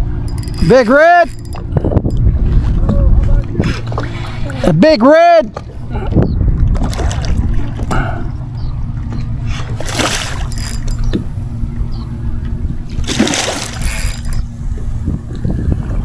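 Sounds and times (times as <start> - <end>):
wind on microphone: 0.0 - 16.0
fish splashing water: 5.5 - 11.9, 12.5 - 14.9.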